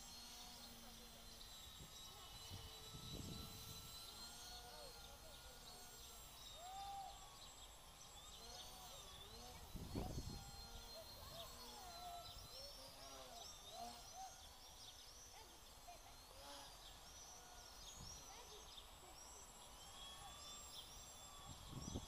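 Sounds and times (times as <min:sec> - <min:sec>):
birds chirping: 0:00.1 - 0:22.0
wind rumble on microphone: 0:02.5 - 0:03.8, 0:09.6 - 0:10.8, 0:21.5 - 0:22.0.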